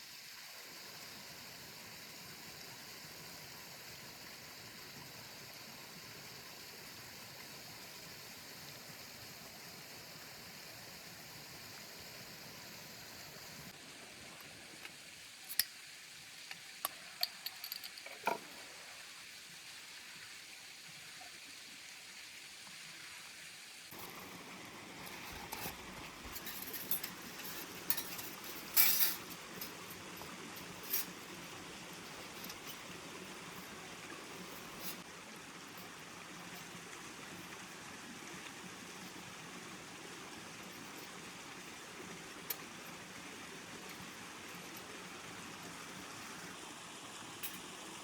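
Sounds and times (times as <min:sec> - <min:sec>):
steady outdoor hiss: 0:00.0 - 0:48.0
camp cookware clinking: 0:16.8 - 0:18.5, 0:25.0 - 0:32.8.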